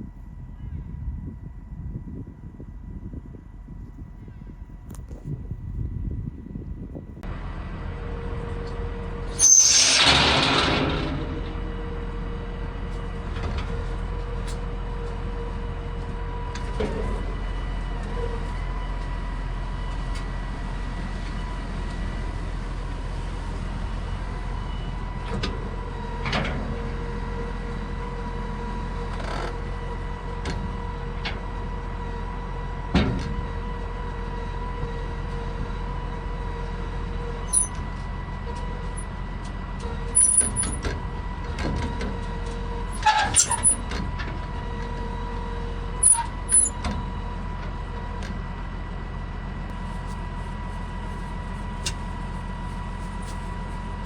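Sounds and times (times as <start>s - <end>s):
vehicle engine running: 10.2s - 54.0s
steady whine: 49.6s - 54.0s.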